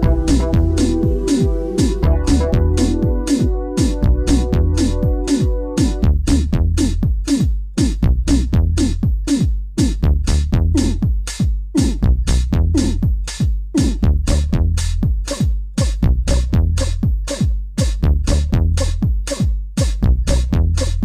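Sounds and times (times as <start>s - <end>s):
synth chord: 0.0s - 6.1s
deep bass: 0.0s - 7.2s, 7.9s - 9.2s, 9.8s - 11.1s, 11.8s - 13.2s, 13.9s - 15.2s, 16.0s - 17.2s, 17.9s - 19.1s, 20.0s - 21.0s
drum machine beat: 0.0s - 21.0s.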